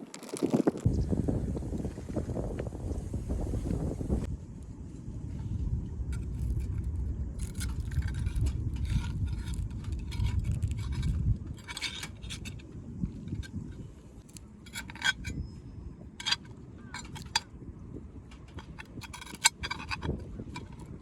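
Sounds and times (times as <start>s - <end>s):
wind buffeting microphone: 0.0s - 21.0s
cookware scraping and clicking: 14.7s - 15.4s, 16.2s - 17.5s, 18.4s - 21.0s.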